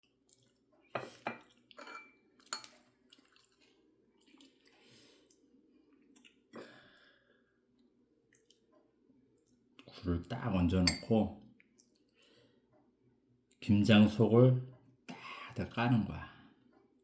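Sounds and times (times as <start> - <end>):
dishes and utensils clinking: 1.0 - 2.8, 10.8 - 11.2.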